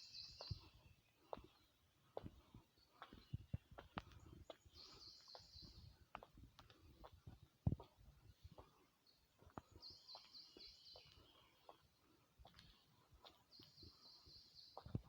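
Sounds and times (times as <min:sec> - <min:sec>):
faint outdoor background: 0:00.0 - 0:15.0.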